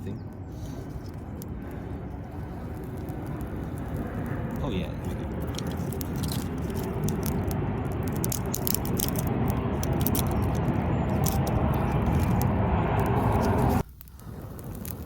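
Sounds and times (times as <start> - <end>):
steady low rumble: 0.0 - 15.0
campfire crackling and popping: 0.1 - 15.0.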